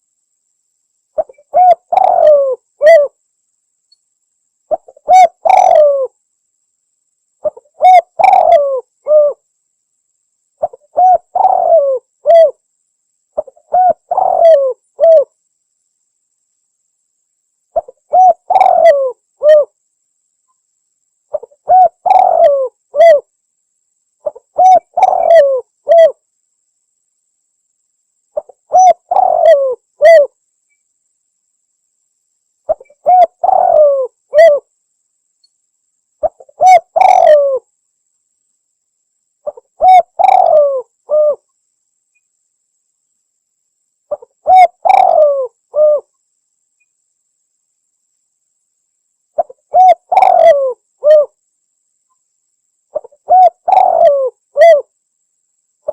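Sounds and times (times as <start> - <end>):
dove cooing: 1.2 - 3.2, 4.7 - 6.2, 7.4 - 9.4, 10.6 - 12.6, 13.4 - 15.3, 17.8 - 19.8, 21.3 - 23.3, 24.2 - 26.2, 28.4 - 30.3, 32.7 - 34.7, 36.2 - 37.7, 39.4 - 41.5, 44.1 - 46.1, 49.4 - 51.4, 52.9 - 54.9.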